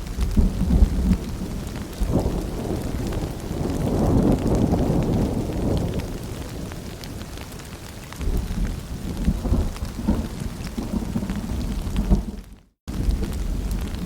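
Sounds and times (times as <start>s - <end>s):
rolling thunder rumble: 0.0s - 14.0s
steady rain dripping: 0.0s - 14.0s.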